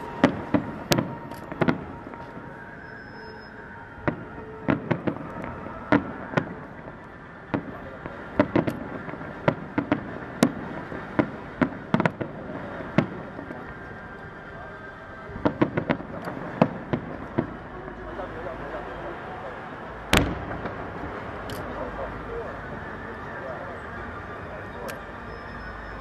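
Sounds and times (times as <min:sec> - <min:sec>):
distant fireworks bangs: 0:00.0 - 0:02.5, 0:04.0 - 0:14.0, 0:15.4 - 0:17.7, 0:20.1 - 0:21.8
background murmur: 0:00.0 - 0:26.0.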